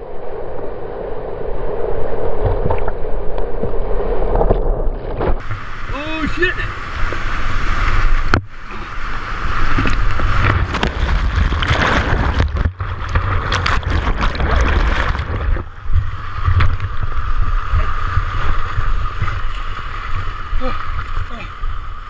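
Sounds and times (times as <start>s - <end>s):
rushing splashing water: 5.4s - 22.0s
low rumble on microphone: 6.7s - 21.9s.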